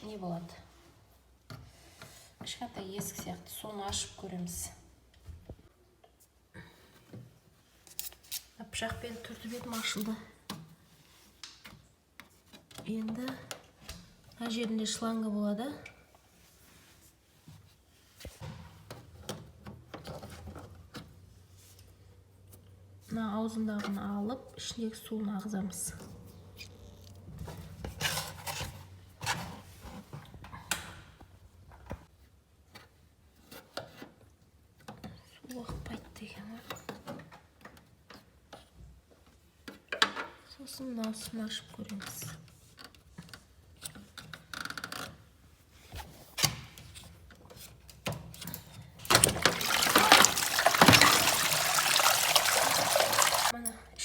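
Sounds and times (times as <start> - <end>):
plastic hose rubbing and scraping: 49.1 - 53.5
water gushing out: 49.1 - 53.5.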